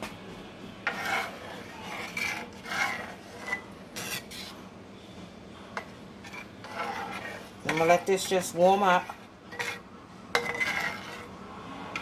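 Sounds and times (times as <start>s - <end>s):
utensil scraping pan bottom: 0.8s - 4.6s, 5.8s - 11.3s.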